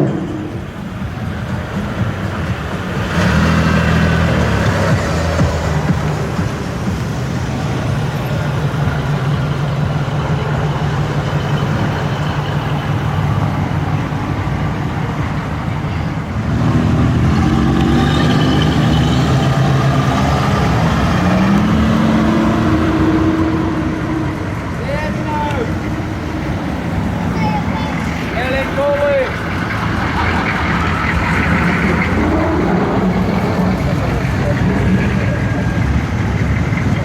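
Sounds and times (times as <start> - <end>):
engines rumbling as cars pass: 0.0 - 37.0
engine revving up: 16.4 - 37.0.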